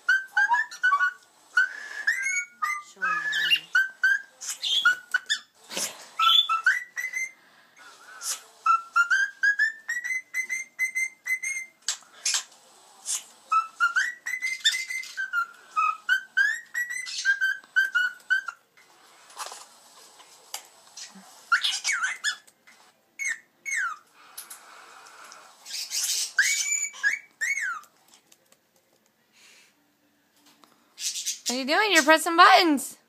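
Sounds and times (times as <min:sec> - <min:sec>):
cockatiel whistling: 0:00.0 - 0:05.5, 0:06.2 - 0:07.4, 0:08.2 - 0:12.5, 0:13.5 - 0:18.6, 0:21.5 - 0:22.4, 0:23.2 - 0:24.0, 0:25.6 - 0:27.9
cockatiel sharp calls: 0:21.0 - 0:22.4, 0:25.6 - 0:27.9.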